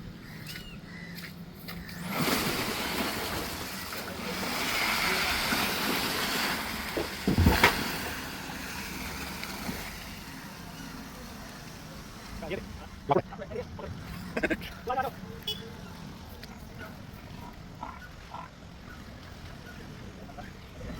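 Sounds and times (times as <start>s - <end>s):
tyres rushing over terrain: 1.8s - 15.2s
heavy thud: 7.2s - 7.8s.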